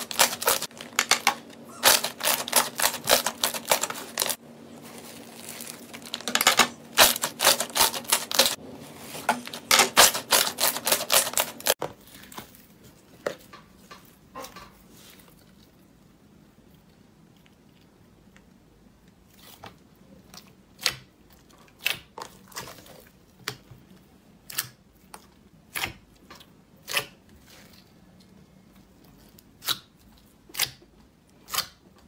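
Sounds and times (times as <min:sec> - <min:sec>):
crunchy slime crackling: 0:00.0 - 0:08.6, 0:09.5 - 0:12.7.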